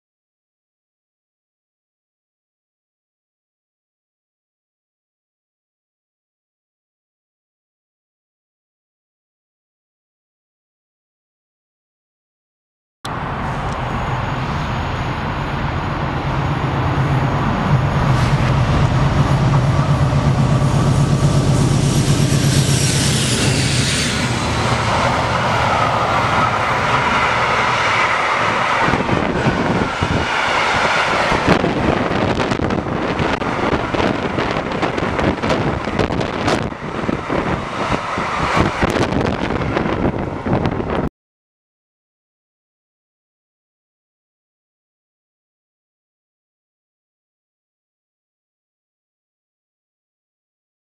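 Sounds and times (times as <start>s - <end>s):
diesel locomotive engine drone: 13.1s - 41.1s
train wagons rumbling and rattling: 13.1s - 41.1s.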